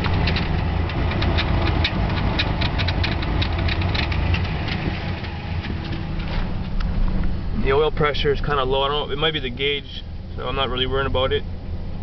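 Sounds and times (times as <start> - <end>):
engine idling roughly: 0.0 - 6.8
engine ticking: 0.0 - 12.0.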